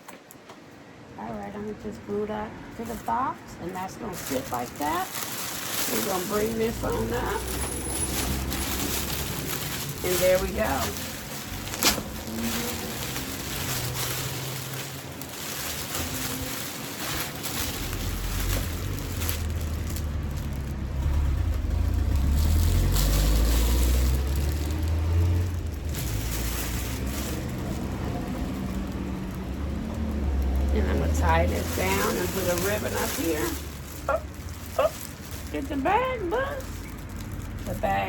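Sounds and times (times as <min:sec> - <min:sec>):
plastic bag rustling and crinkling: 0:02.7 - 0:38.0
low rumble: 0:06.5 - 0:35.5.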